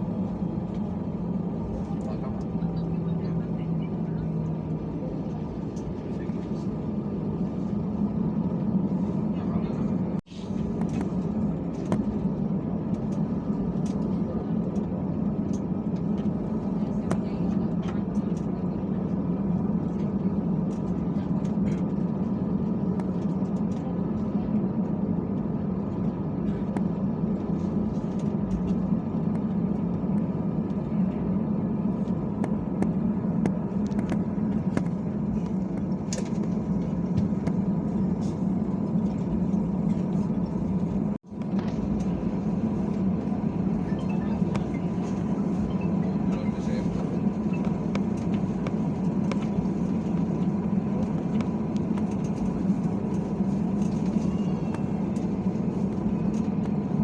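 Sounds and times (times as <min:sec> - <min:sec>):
airplane cabin drone: 0:00.0 - 0:57.0
faint voices: 0:00.3 - 0:07.7, 0:15.8 - 0:22.1, 0:41.7 - 0:56.9.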